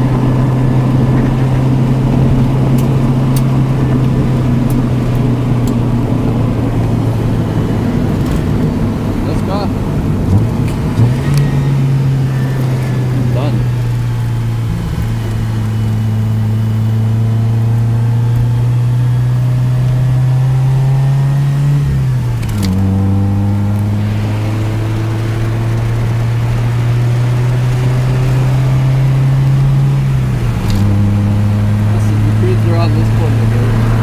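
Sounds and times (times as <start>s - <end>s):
car engine revving under load: 0.0s - 34.0s.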